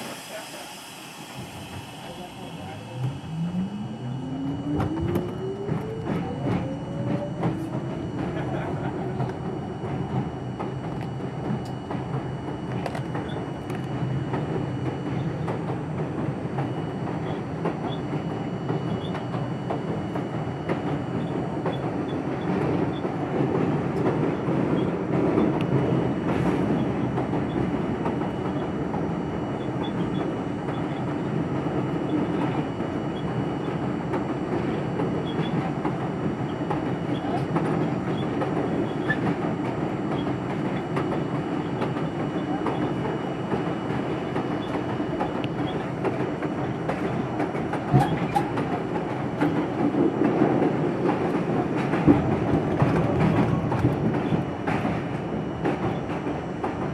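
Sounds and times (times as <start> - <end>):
subway train wheels rumbling: 0.0 - 56.9.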